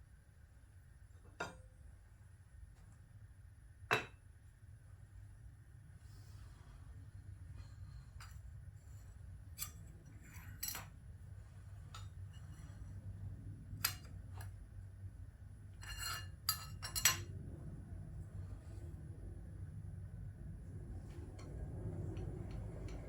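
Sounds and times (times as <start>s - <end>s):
steady low hum: 4.8s - 23.0s
metal tools clinking on steel table: 9.6s - 10.9s, 15.8s - 17.3s.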